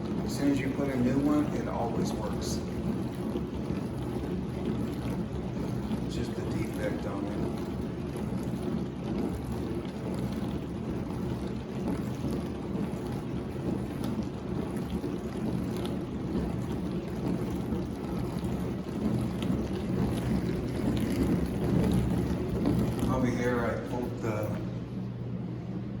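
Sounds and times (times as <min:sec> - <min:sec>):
dishwasher motor hum: 0:00.0 - 0:26.0
water swishing: 0:00.0 - 0:26.0.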